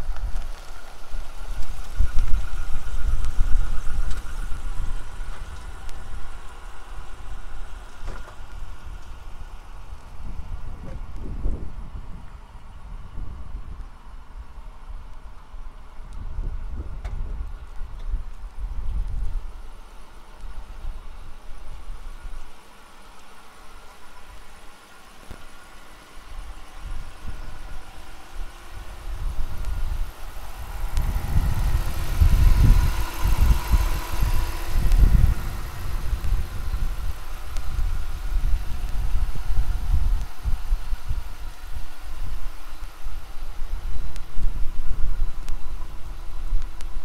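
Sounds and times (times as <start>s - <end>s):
engine idling: 0.0s - 47.0s.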